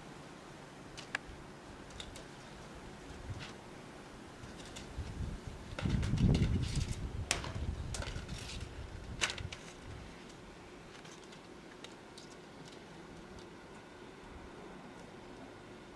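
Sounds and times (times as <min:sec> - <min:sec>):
blizzard wind gusting: 0:02.6 - 0:10.9.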